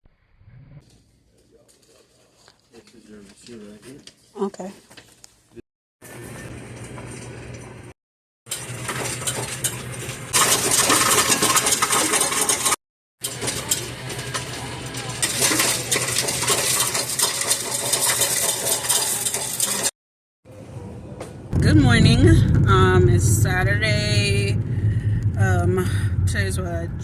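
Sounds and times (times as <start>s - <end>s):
small hard objects clinking: 10.3s - 19.9s.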